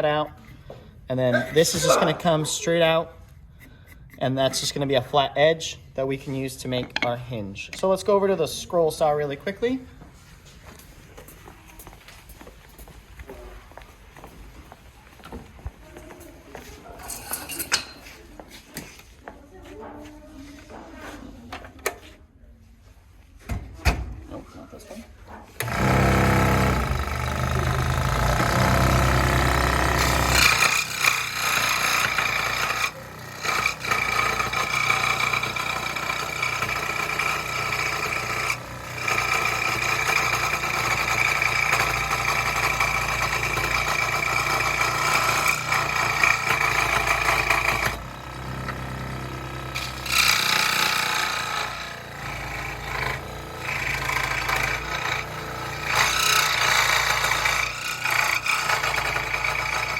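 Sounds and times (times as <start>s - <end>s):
scroll saw cutting wood: 1.3s - 2.7s, 25.6s - 59.9s.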